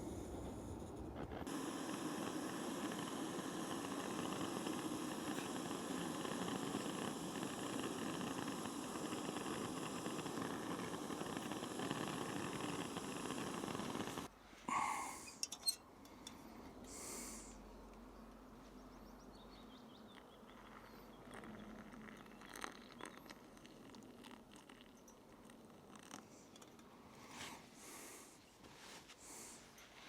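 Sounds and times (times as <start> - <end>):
camping gas hissing: 0.0 - 15.6, 16.9 - 17.6, 27.2 - 28.4, 29.2 - 29.8.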